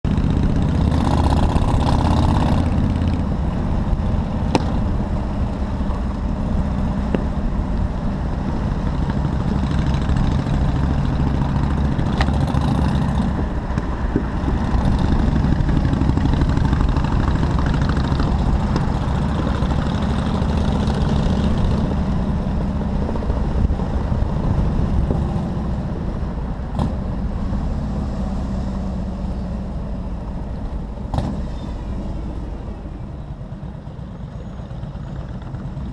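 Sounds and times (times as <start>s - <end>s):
motorcycle engine running: 0.0s - 26.2s.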